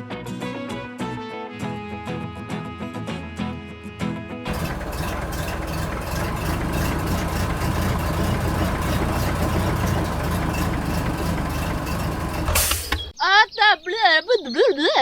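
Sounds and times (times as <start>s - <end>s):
mini tractor engine running: 4.5s - 13.0s.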